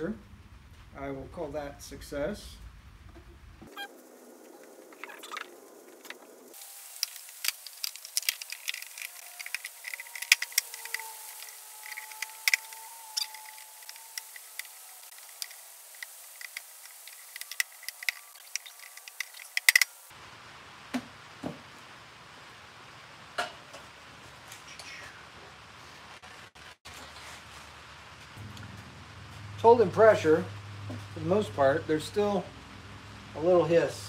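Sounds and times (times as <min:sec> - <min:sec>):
rain drops ticking: 0:04.0 - 0:25.0.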